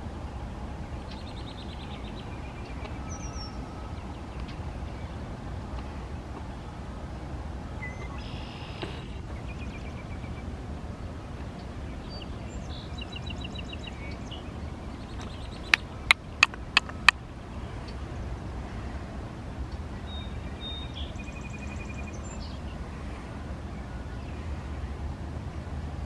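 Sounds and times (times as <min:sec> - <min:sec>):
small birds trilling: 0:00.0 - 0:06.7, 0:07.8 - 0:23.2
steady low rumble: 0:00.0 - 0:26.0
sharp clicks: 0:15.2 - 0:17.2.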